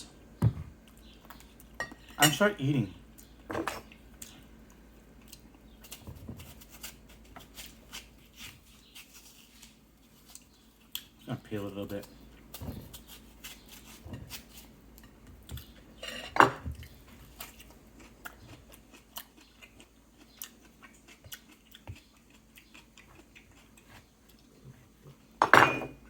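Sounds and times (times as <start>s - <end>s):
grapefruit rind being peeled: 5.3s - 14.8s.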